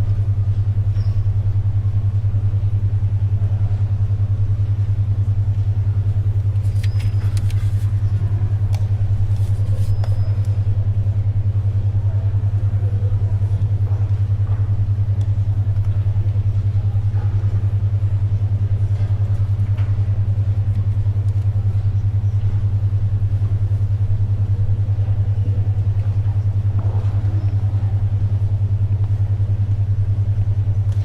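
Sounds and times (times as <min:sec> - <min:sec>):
pulsing low hum tone: 0:00.0 - 0:31.0
pages turning: 0:06.5 - 0:10.5.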